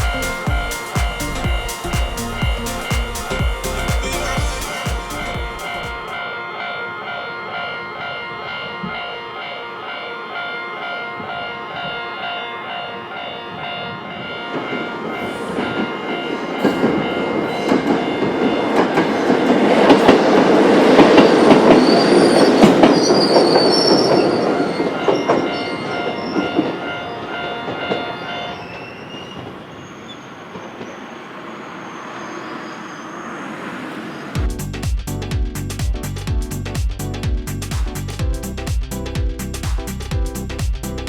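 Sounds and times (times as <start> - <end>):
high wheel squeal: 0.0 - 6.2, 21.1 - 26.6, 28.2 - 34.4
electronic crossing alarm: 0.0 - 19.3
train passing: 0.0 - 40.6.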